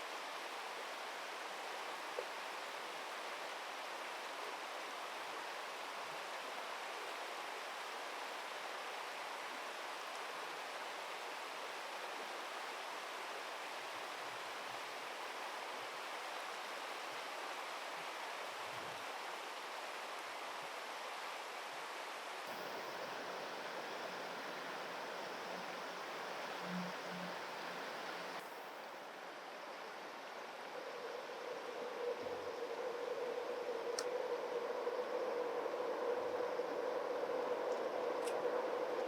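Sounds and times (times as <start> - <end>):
river water rushing: 22.5 - 28.4.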